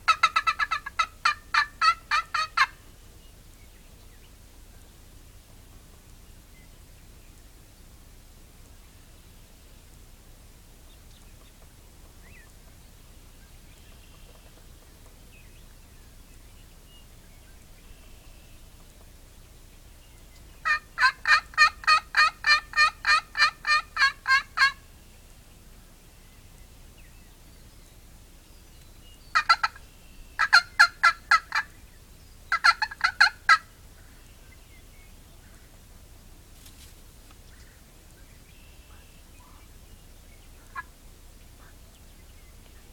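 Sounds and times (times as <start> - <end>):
turkeys gobbling: 0.0 - 2.9, 20.6 - 24.9, 29.3 - 31.8, 32.5 - 34.2, 40.5 - 41.0
steady background hiss: 0.0 - 42.9.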